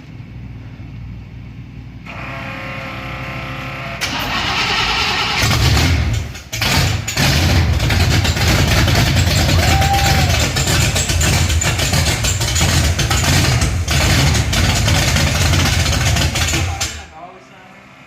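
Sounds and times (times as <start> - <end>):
car engine cranking and starting: 4.0 - 17.1.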